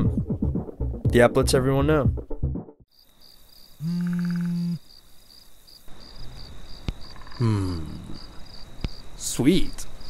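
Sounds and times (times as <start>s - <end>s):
crickets chirping: 2.9s - 10.0s.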